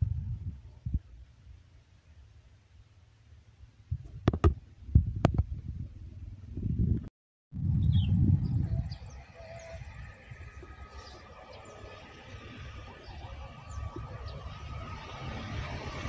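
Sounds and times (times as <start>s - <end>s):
bird chirps: 7.7s - 14.8s
train rumbling: 10.3s - 16.0s.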